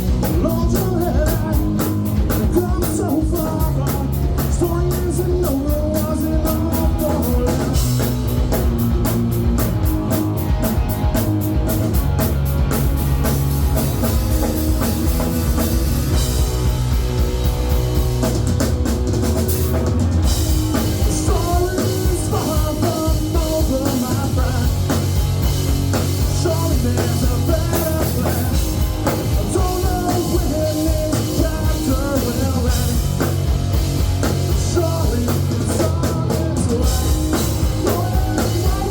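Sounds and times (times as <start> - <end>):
rock song with singing: 0.0 - 38.9.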